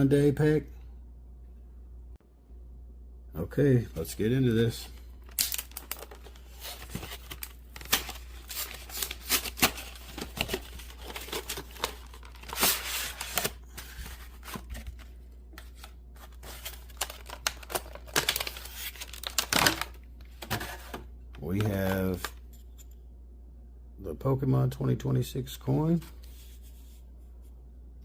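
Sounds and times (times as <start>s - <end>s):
packaging crinkling and rustling: 4.8s - 22.4s
packaging tearing: 5.2s - 15.0s, 15.7s - 20.0s.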